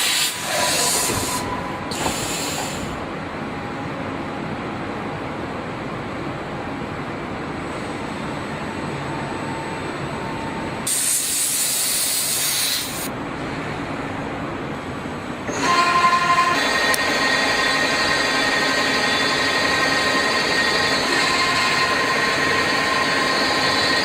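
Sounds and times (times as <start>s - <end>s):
machine mechanical hum: 0.0s - 24.0s
high hiss: 10.9s - 13.1s
multi-pitched machine whine: 15.5s - 24.0s.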